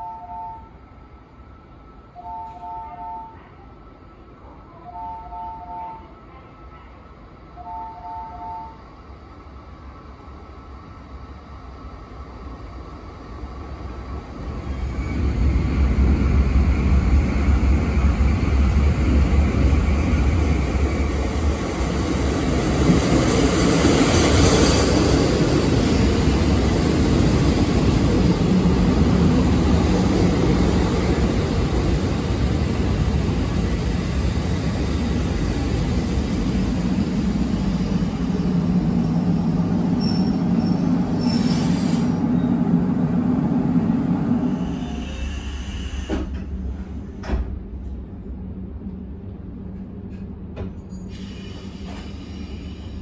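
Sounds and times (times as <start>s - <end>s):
train wheels rumbling on rail: 8.3s - 53.0s
brake squeal: 40.0s - 42.5s, 50.9s - 53.0s
air brake hiss: 41.2s - 42.3s, 44.5s - 46.4s, 51.0s - 53.0s.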